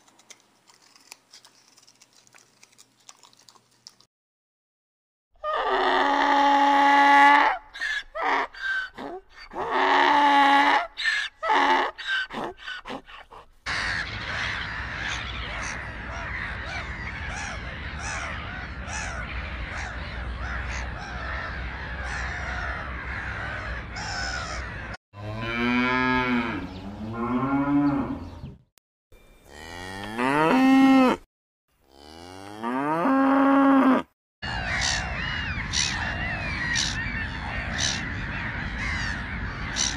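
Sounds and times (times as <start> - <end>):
gulls calling: 7.4 - 25.0, 34.4 - 39.9
cows mooing: 25.2 - 28.3, 29.5 - 31.2, 31.9 - 34.1.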